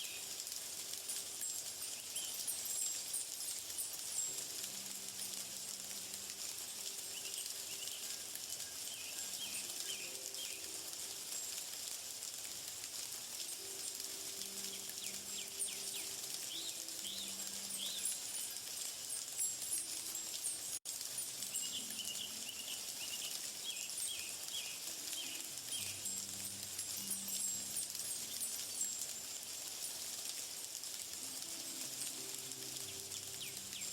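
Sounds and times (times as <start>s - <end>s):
high insect chorus: 0.0s - 11.7s, 13.4s - 30.2s
birds chirping: 6.8s - 11.0s, 13.4s - 20.6s, 21.4s - 29.1s.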